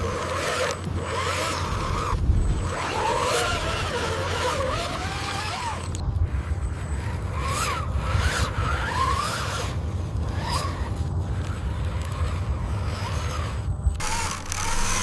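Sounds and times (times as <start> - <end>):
wavering whine: 0.0 - 15.0.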